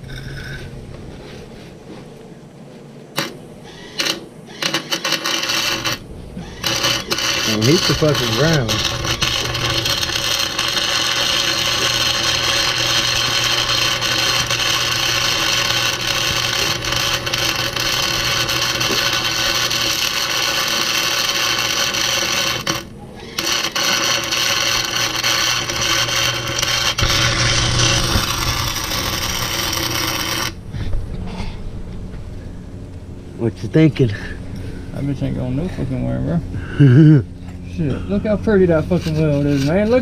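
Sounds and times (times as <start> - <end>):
low electrical hum: 0.0 - 40.0
arc welding crackling hiss: 3.2 - 30.6.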